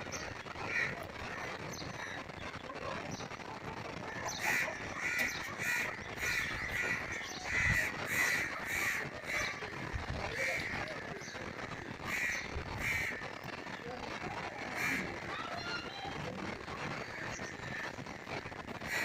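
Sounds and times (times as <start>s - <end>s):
bird calling: 0.0s - 13.8s.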